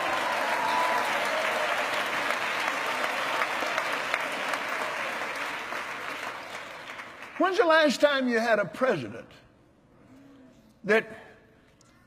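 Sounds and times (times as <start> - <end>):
voices cheering: 0.0 - 3.5
congregation applauding: 0.0 - 8.3.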